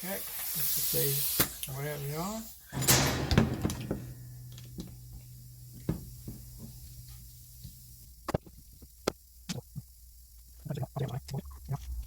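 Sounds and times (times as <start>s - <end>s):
metallic clicks and knocks: 2.8s - 7.8s
low steady hum: 2.8s - 8.2s.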